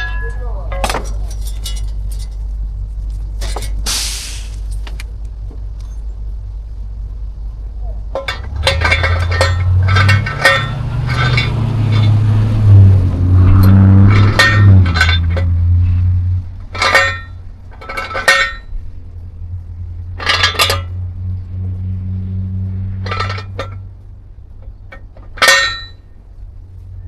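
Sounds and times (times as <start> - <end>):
metal objects clinking: 0.0 - 2.6, 3.2 - 3.9, 8.1 - 15.7, 16.6 - 19.0, 20.0 - 21.0, 23.0 - 23.9, 24.6 - 26.1
low hum: 0.0 - 27.0.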